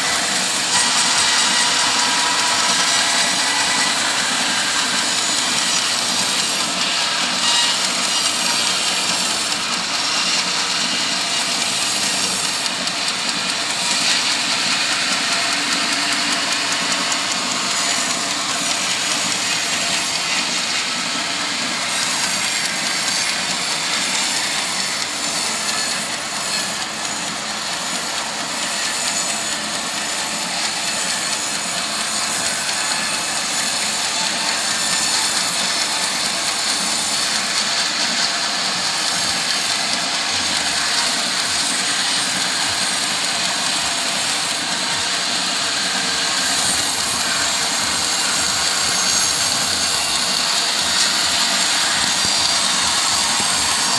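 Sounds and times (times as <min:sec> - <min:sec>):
sawmill running: 0:00.0 - 0:53.9.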